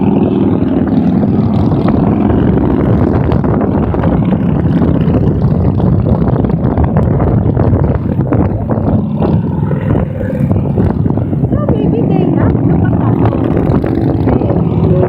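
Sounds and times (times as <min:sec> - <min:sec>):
motorcycles riding past: 0:08.8 - 0:15.0.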